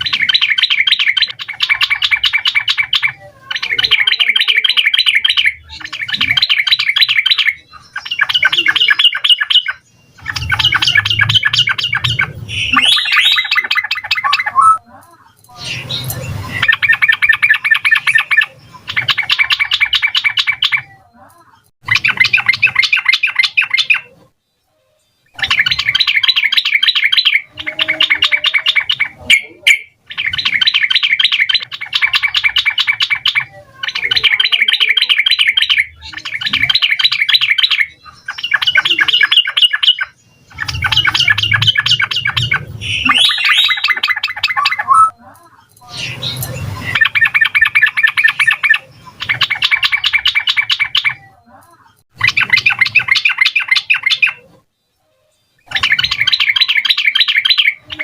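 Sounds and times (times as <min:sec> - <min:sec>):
bird singing bubbling notes: 0:00.0 - 0:14.9, 0:34.0 - 0:45.2.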